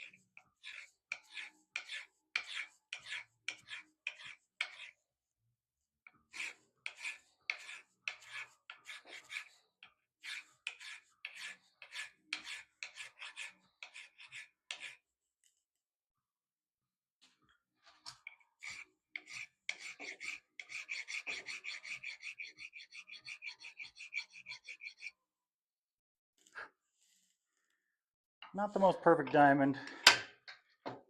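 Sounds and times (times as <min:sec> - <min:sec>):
hand file rasping on metal: 0:00.0 - 0:05.0, 0:06.3 - 0:15.1, 0:18.1 - 0:25.2.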